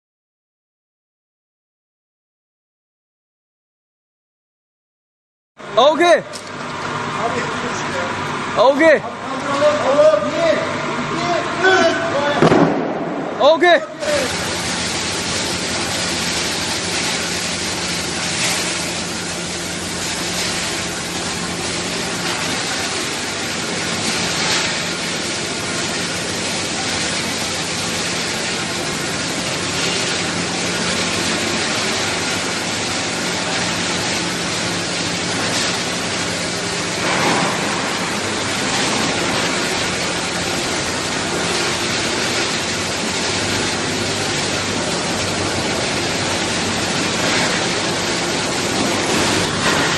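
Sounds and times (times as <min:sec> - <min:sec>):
press machine low hum: 0:14.0 - 0:49.9.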